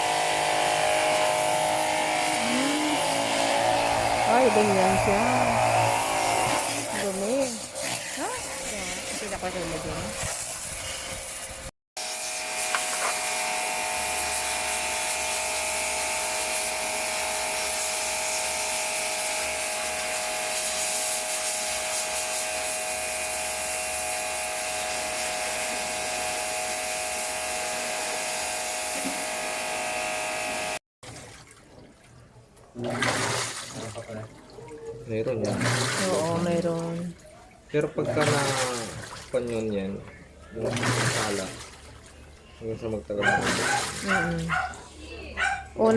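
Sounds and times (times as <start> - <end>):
small electric motor whine: 12.0 - 30.8.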